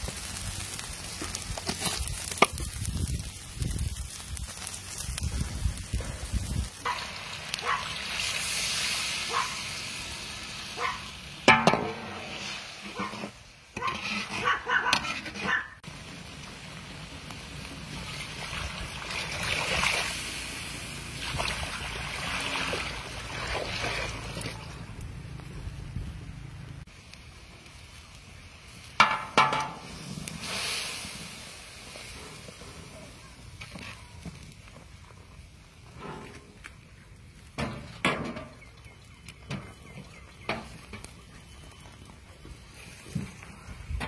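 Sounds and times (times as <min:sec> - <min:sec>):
fish frying with pops: 0:00.0 - 0:26.0, 0:26.6 - 0:44.0
water poured into wok: 0:17.8 - 0:24.8.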